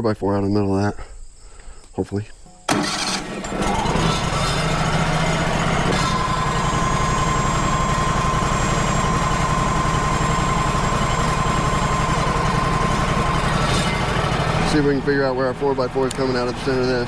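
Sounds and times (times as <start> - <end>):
sawmill engine running: 2.7 - 17.0
high whine: 3.4 - 14.9.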